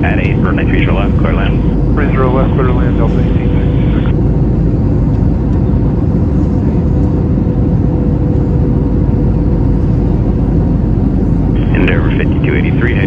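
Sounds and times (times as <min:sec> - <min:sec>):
airplane cabin engine roar: 0:00.0 - 0:13.0
steady hum: 0:00.0 - 0:13.0.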